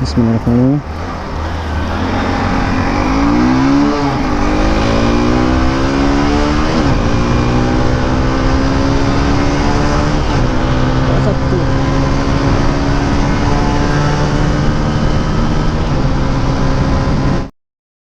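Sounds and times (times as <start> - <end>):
motorcycle engine accelerating: 0.8 - 17.5.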